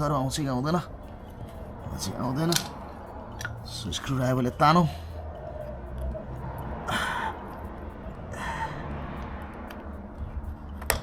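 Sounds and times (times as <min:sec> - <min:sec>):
man breathing with effort: 0:00.9 - 0:01.9, 0:04.7 - 0:10.8.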